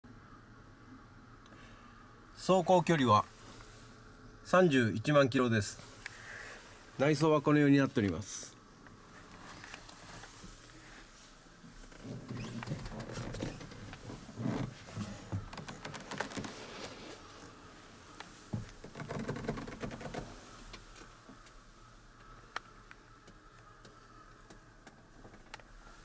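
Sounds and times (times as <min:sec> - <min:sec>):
light clicks and knocks: 0:11.8 - 0:16.9, 0:18.2 - 0:21.6.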